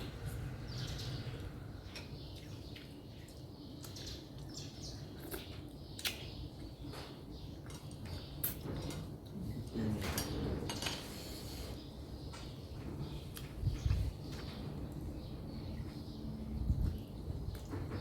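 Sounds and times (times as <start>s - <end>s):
wet chewing noises: 1.3s - 9.7s.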